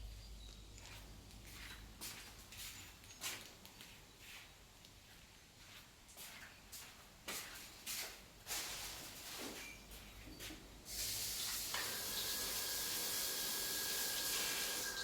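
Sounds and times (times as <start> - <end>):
food sizzling in hot oil: 10.9 - 15.0.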